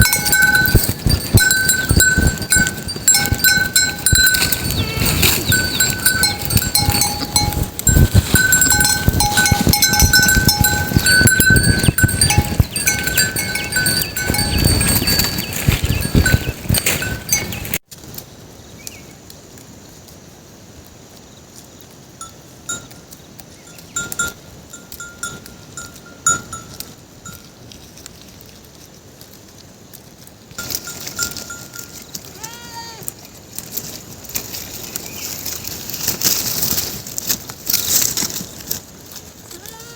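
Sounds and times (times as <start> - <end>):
goats bleating: 0.0 - 16.0, 32.3 - 33.1, 39.5 - 39.9
goat bell clanking: 0.0 - 17.8, 22.2 - 27.6, 30.6 - 32.9.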